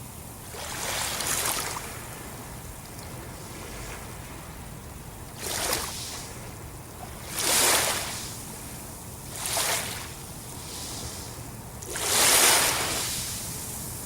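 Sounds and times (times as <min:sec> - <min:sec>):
low rumble of sea: 0:00.0 - 0:14.0
surf rushing: 0:09.3 - 0:13.6.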